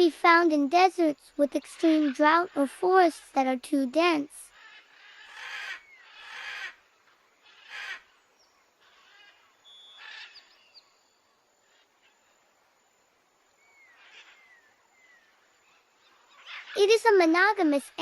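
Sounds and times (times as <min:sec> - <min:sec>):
birdsong whistled notes: 0:05.7 - 0:06.4, 0:09.3 - 0:11.4, 0:13.6 - 0:16.8.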